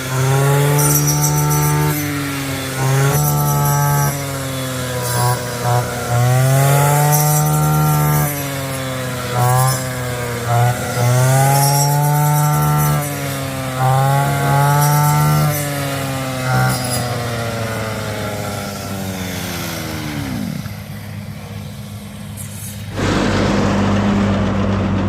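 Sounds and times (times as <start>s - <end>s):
small engine revving: 0.0s - 25.0s.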